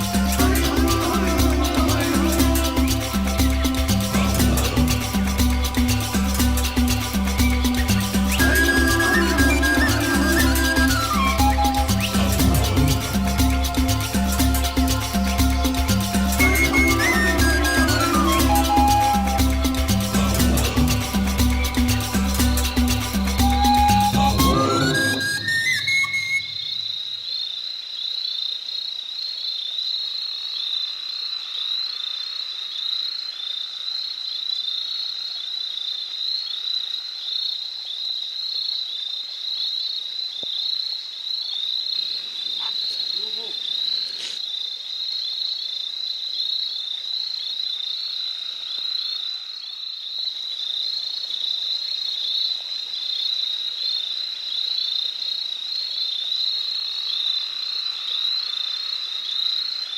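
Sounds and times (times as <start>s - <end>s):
rapid high-pitched animal chirps: 4.8s - 20.1s, 20.7s - 28.2s, 41.4s - 44.4s
low wavering animal call: 8.1s - 13.6s, 16.2s - 20.6s, 23.4s - 27.0s.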